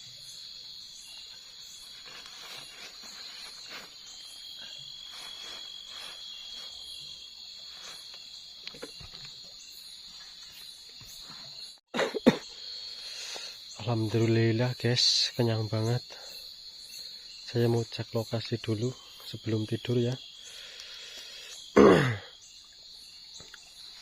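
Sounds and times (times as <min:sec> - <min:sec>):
cricket trill: 0:00.0 - 0:24.0
insect chirping: 0:00.0 - 0:24.0
soft scuffs and rustles: 0:01.6 - 0:08.3.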